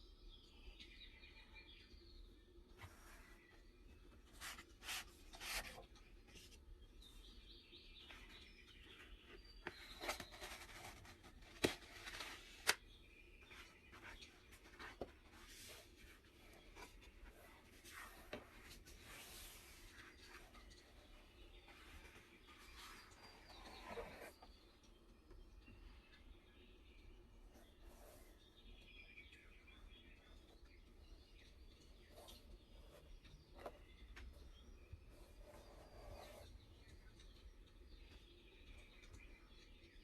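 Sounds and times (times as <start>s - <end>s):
paper and packaging rustling: 9.0s - 12.8s.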